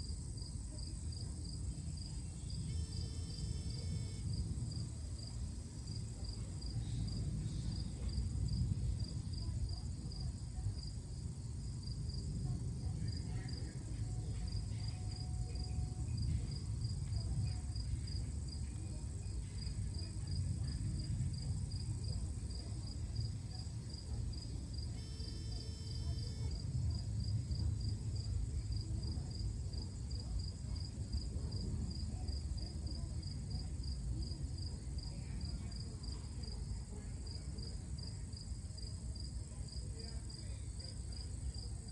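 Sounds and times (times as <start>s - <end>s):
insect chirping: 0.0s - 5.3s, 23.9s - 26.6s
continuous low rumble: 0.0s - 41.9s.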